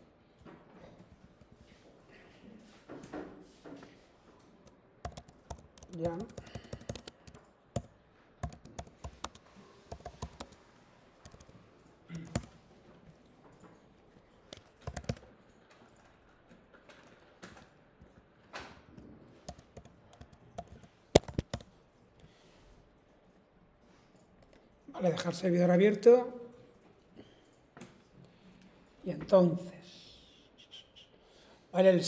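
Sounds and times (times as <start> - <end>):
typing on a computer keyboard: 4.4 - 21.8.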